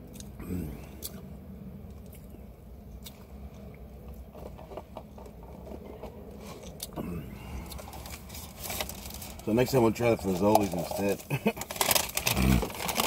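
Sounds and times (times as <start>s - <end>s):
person chewing food: 0.0s - 9.0s
low steady hum: 0.0s - 13.0s.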